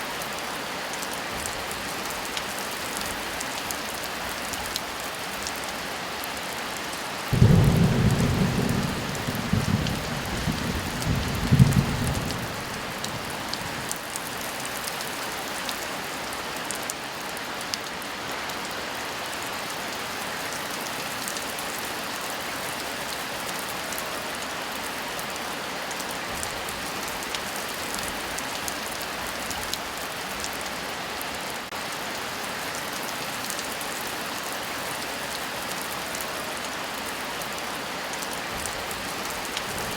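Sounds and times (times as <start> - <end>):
heavy rain: 0.0 - 39.9
thunder clap rumbling: 7.4 - 14.0.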